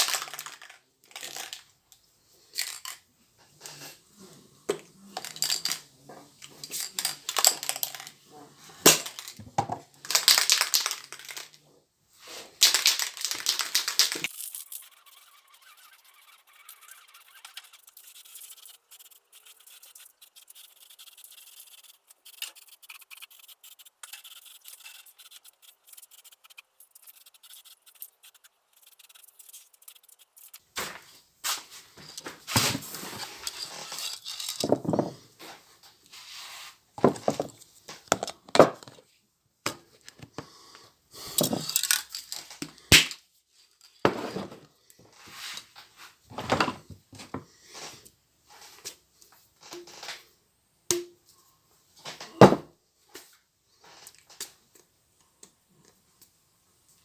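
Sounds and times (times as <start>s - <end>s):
tools knocking and scraping: 32.0s - 35.2s.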